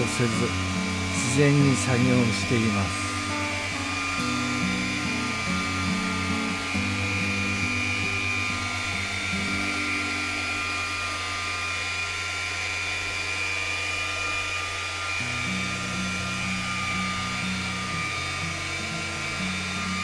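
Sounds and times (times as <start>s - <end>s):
background music: 0.0s - 10.9s
polisher whining: 0.0s - 20.0s.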